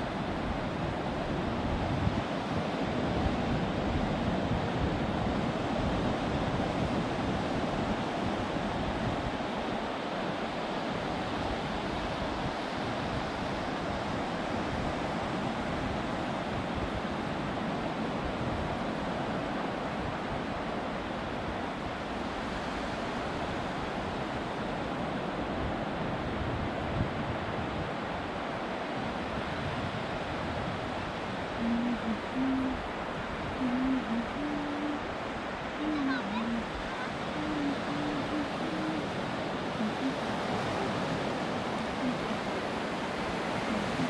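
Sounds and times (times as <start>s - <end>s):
wind buffeting microphone: 0.0s - 10.0s
ocean waves on beach: 0.0s - 44.0s.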